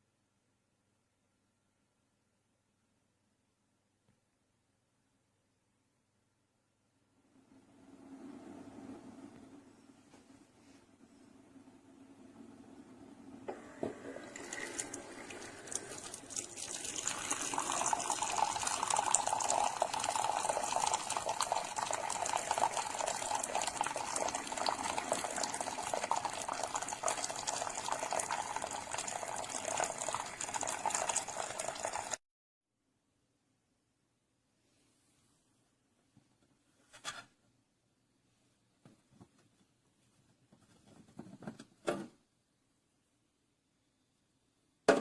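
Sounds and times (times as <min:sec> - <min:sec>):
coffee brewer pouring liquid: 0:13.5 - 0:32.2.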